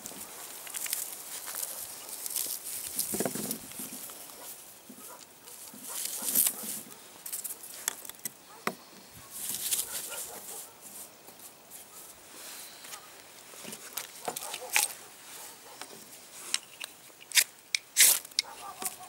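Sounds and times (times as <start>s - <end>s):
fire steel scraping sparks: 16.6s - 18.4s.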